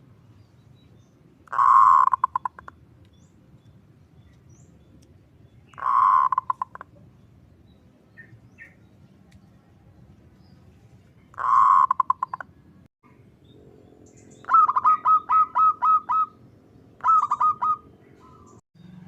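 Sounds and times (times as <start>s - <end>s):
dove calling: 1.5s - 2.8s, 5.7s - 7.2s, 11.3s - 12.6s, 14.0s - 18.6s.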